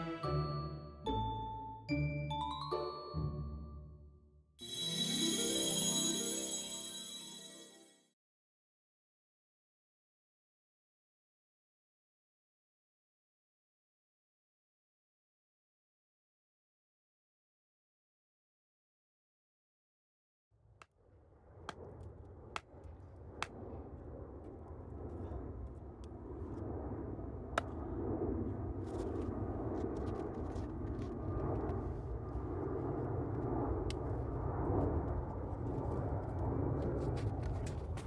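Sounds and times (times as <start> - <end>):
jet engines rumbling overhead: 21.0 - 38.0.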